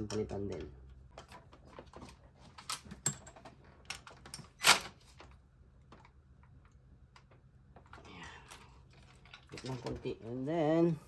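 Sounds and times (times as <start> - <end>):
hand tools clicking and clinking: 2.6 - 4.8.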